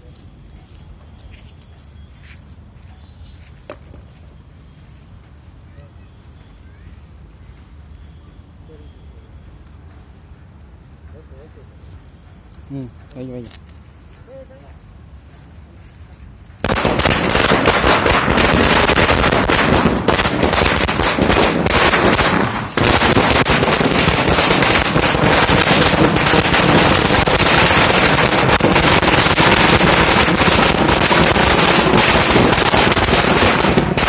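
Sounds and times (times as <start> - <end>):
firecracker string rattling: 16.6 - 34.0.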